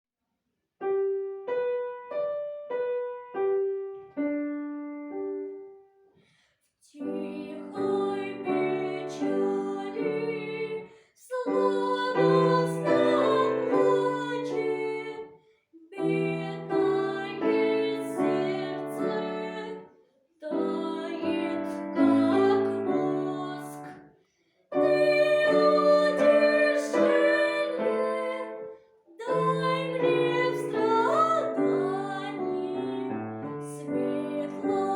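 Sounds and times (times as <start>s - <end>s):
solo piano playing: 0.8s - 6.0s, 20.5s - 24.0s, 24.8s - 34.9s.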